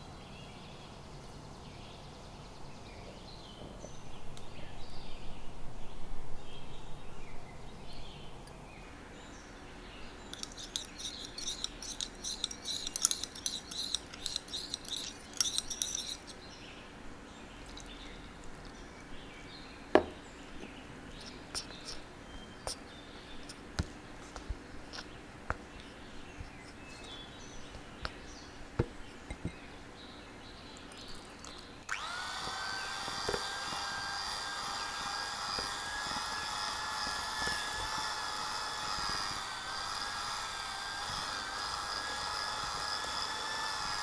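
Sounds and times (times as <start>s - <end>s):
faint birds chirping: 0.0s - 44.0s
utensil clinking against bowl: 10.3s - 16.5s.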